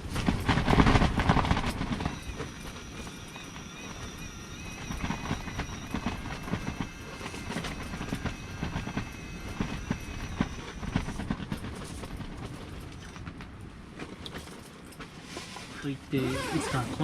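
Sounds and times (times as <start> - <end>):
rapid knocks and clatter: 0.0 - 2.5, 4.8 - 13.5
electric fishing reel motor whining: 2.0 - 11.1.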